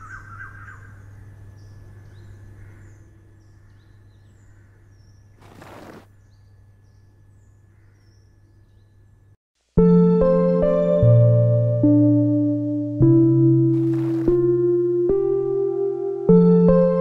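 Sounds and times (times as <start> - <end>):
birds chirping: 0.0 - 9.4
rustling: 5.4 - 6.1, 13.8 - 14.5.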